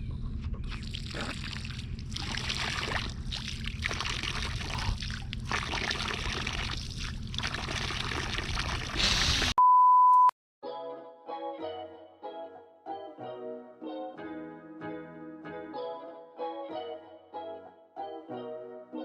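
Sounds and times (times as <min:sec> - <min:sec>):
low hum: 0:00.0 - 0:09.6
loud single-pitch beep: 0:09.6 - 0:10.3
piano music: 0:10.6 - 0:19.0.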